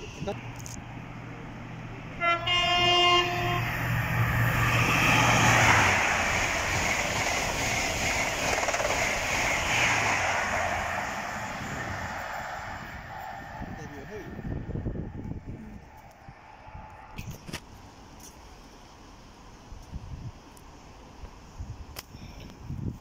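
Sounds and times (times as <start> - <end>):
train horn: 2.2 - 3.9
train wheels rattling on rails: 3.8 - 14.4.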